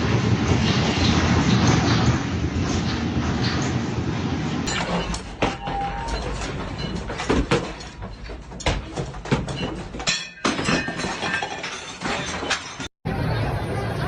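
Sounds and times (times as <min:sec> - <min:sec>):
objects clattering and breaking: 0:04.6 - 0:12.9
noisy background: 0:13.1 - 0:14.0.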